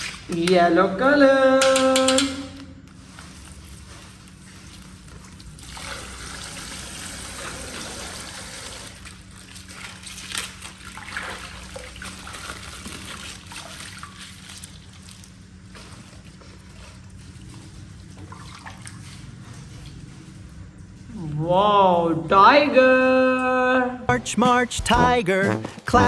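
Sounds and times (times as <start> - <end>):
water trickling and splashing: 3.0 - 20.0.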